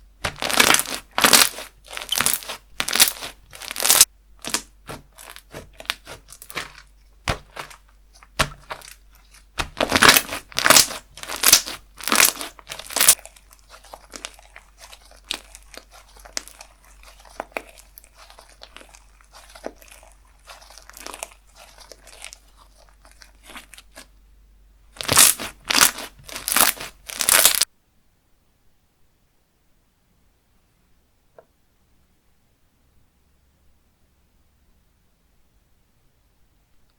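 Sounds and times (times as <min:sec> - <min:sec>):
slime squeezed by hand popping: 0:00.2 - 0:13.2, 0:25.0 - 0:27.6.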